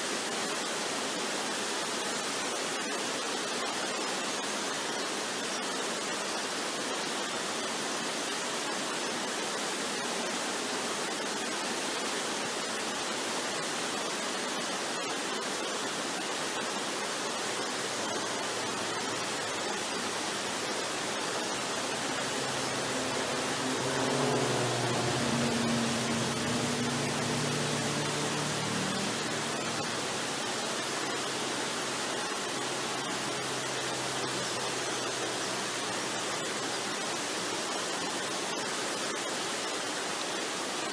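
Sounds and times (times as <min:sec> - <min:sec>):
waterfall rushing: 0:00.1 - 0:40.9
soft low music notes: 0:18.6 - 0:30.2.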